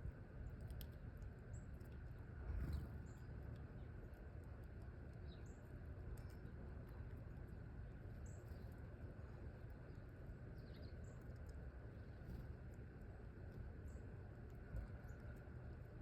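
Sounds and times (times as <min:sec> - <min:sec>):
low background rumble: 0:00.0 - 0:16.0
small birds chirping: 0:05.0 - 0:12.8.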